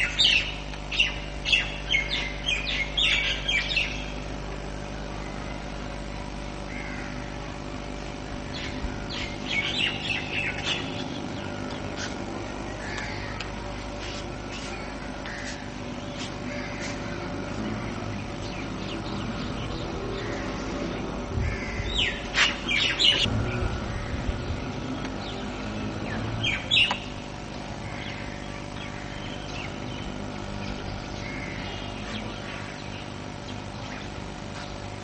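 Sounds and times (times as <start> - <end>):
birds chirping: 0.0 - 35.0
steady low hum: 0.0 - 35.0.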